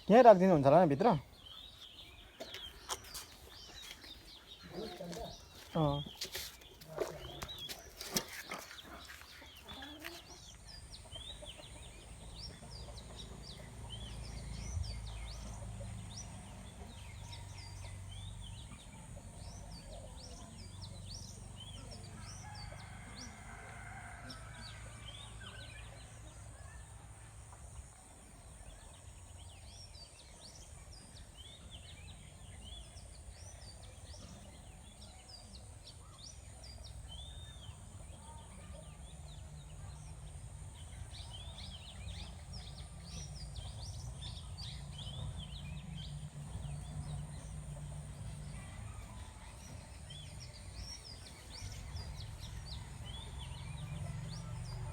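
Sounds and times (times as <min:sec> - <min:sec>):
chickens chirping: 0:00.0 - 0:29.7.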